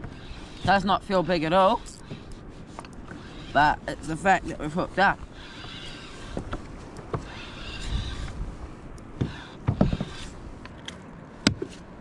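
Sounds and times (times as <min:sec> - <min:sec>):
fishing reel cranking: 0:01.8 - 0:02.1, 0:05.3 - 0:06.4, 0:07.2 - 0:08.3.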